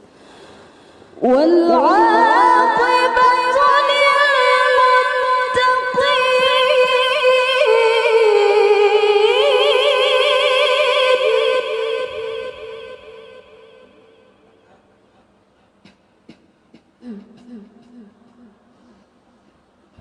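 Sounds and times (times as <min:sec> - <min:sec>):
woman reciting with ornamented trills: 0:01.2 - 0:14.7, 0:17.0 - 0:19.1.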